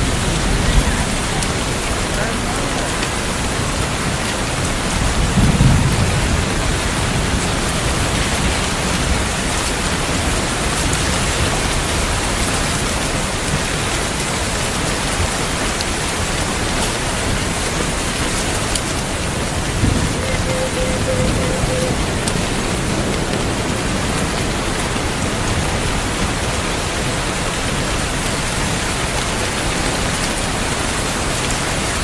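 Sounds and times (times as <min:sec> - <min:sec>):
low rumble of thunder: 0:00.0 - 0:02.2, 0:02.9 - 0:13.8, 0:16.6 - 0:27.8
steady rain: 0:00.0 - 0:32.0.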